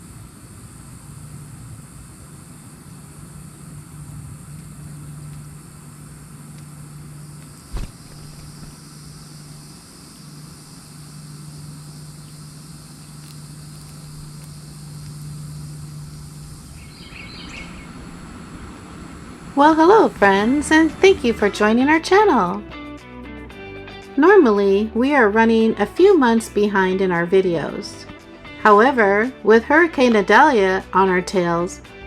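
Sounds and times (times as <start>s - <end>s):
background hiss: 0.0s - 32.0s
low mechanical hum: 0.0s - 32.0s
sharp knock: 7.7s - 8.7s.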